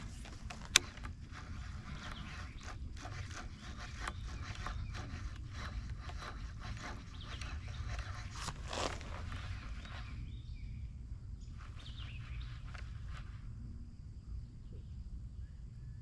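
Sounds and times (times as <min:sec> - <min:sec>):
handling scrapes and clicks: 0:00.0 - 0:10.3, 0:11.5 - 0:13.5
steady low rumble: 0:00.0 - 0:15.9.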